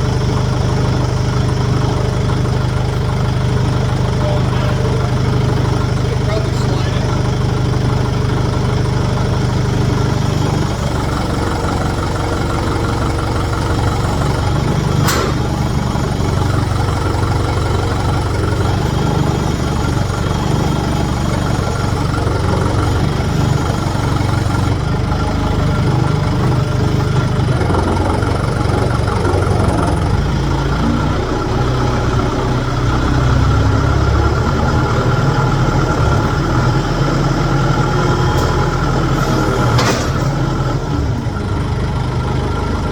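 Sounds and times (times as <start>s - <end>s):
engine idling: 0.0s - 42.9s
sharp click: 15.0s - 15.6s.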